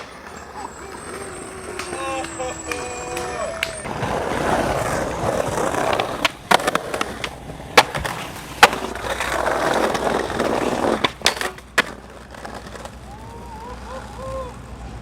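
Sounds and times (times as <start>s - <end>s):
skateboard clacking on ground: 0.0s - 13.3s
skateboard wheels rolling on pavement: 0.0s - 15.0s.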